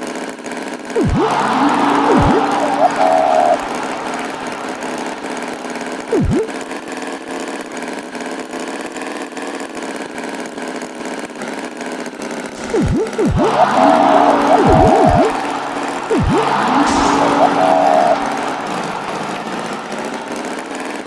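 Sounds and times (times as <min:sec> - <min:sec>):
cartoon tractor engine running: 0:01.0 - 0:06.6, 0:12.6 - 0:20.6
swooping sound effect: 0:01.0 - 0:06.6, 0:12.6 - 0:20.3.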